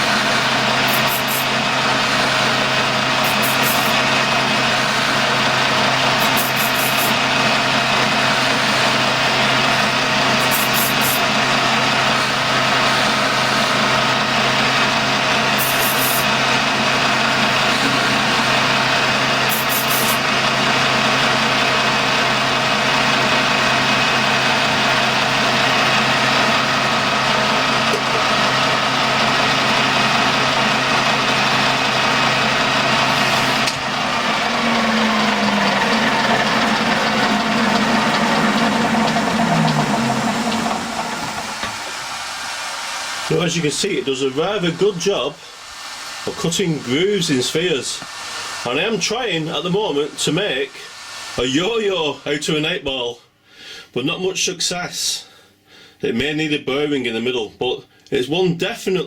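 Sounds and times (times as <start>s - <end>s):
lathe motor hum and whine: 0.0s - 52.8s
short high-pitched hisses: 0.9s - 1.5s, 3.2s - 4.0s, 6.2s - 7.2s, 10.4s - 11.2s, 15.6s - 16.3s, 19.5s - 20.2s, 45.4s - 52.3s.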